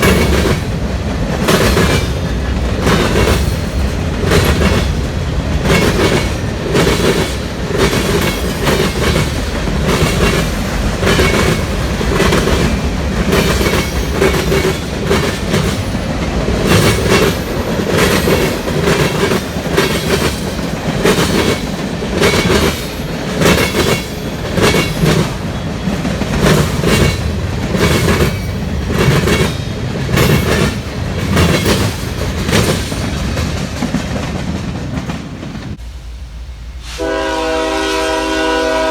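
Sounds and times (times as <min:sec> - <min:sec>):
freight train wheels clacking: 0:00.0 - 0:35.8
train rumble: 0:00.0 - 0:38.9.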